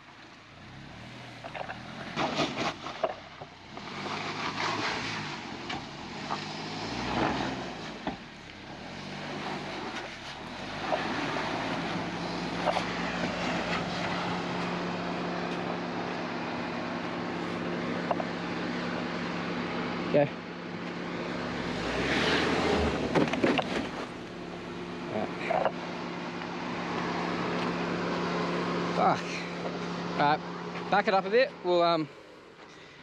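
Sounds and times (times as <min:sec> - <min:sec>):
engine running at low revs: 0:00.0 - 0:33.0
tyres knocking over rock: 0:22.9 - 0:24.2.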